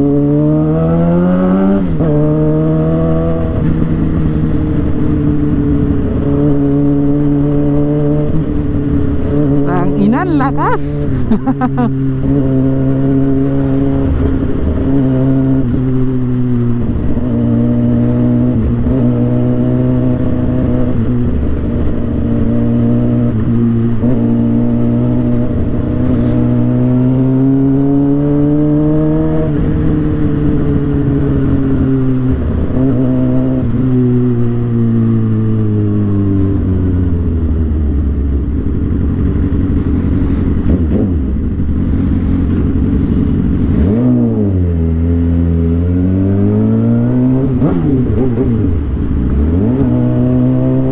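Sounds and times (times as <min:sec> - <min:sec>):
motorcycle engine running: 0:36.3 - 0:50.9.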